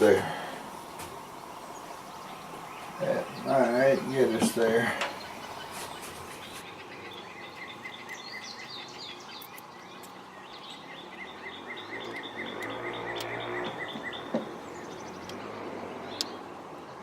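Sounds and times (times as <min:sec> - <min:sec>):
bird chirping: 0:00.0 - 0:17.0
faint steady hiss: 0:00.0 - 0:17.0.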